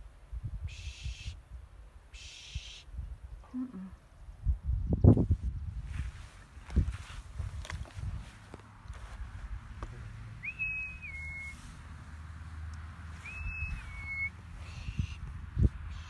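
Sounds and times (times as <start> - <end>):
whistled recall calls: 0.6 - 1.4, 2.1 - 2.9, 10.3 - 11.8, 13.1 - 15.3.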